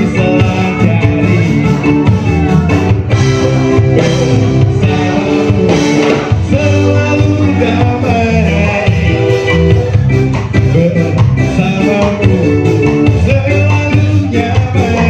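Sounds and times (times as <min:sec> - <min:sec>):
bass guitar: 0:00.0 - 0:15.0
drums: 0:00.0 - 0:15.0
electric guitar: 0:00.0 - 0:15.0
person singing: 0:00.0 - 0:15.0.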